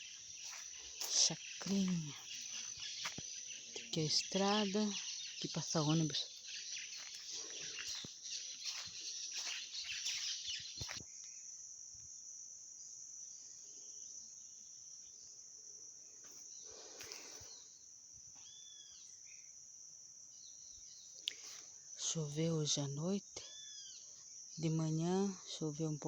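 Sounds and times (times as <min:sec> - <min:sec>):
bird chirps: 0:00.0 - 0:11.4, 0:17.2 - 0:19.5, 0:23.4 - 0:24.7
insects droning: 0:00.0 - 0:26.0.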